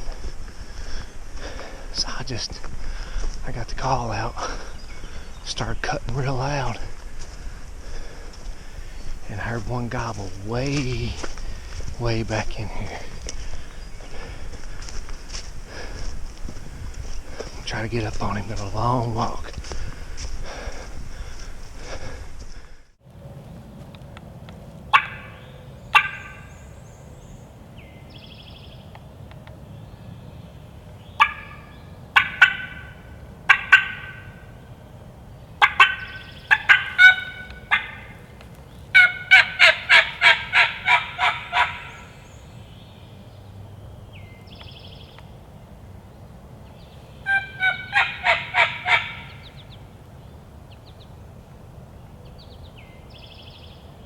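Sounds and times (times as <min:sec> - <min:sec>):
faint songbirds: 0:00.0 - 0:24.2, 0:24.8 - 0:54.0
turkey call yelps: 0:24.9 - 0:26.6, 0:31.2 - 0:34.5, 0:35.6 - 0:38.2, 0:38.9 - 0:42.2, 0:47.2 - 0:49.6.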